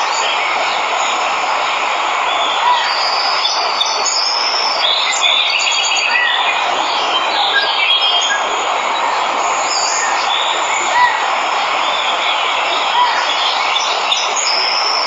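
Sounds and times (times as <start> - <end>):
waterfall rushing: 0.0 - 15.0
birds chirping and trilling: 2.3 - 15.0.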